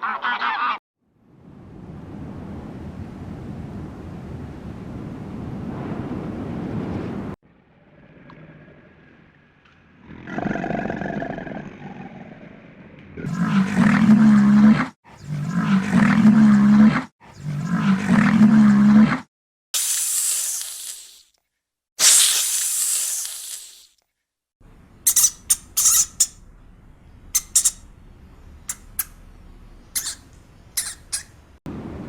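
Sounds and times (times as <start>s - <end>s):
low-pitched animal calls: 25.0s - 26.5s, 27.3s - 28.0s, 28.6s - 31.6s.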